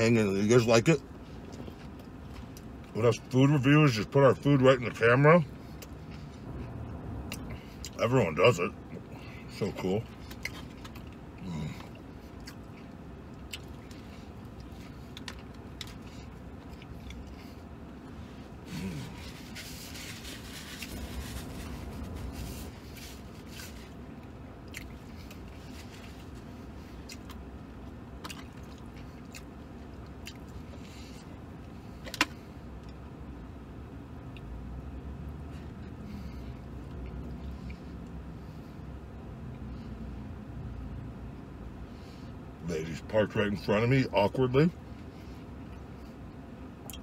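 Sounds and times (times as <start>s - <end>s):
steady low hum: 0.0s - 47.0s
man chewing food: 1.1s - 3.0s, 10.0s - 33.1s
paper napkin rustling: 19.1s - 23.7s.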